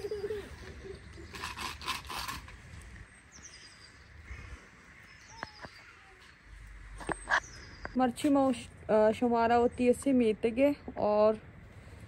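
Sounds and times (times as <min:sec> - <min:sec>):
faint outdoor ambience: 0:00.0 - 0:12.0
small birds chirping: 0:02.8 - 0:08.2.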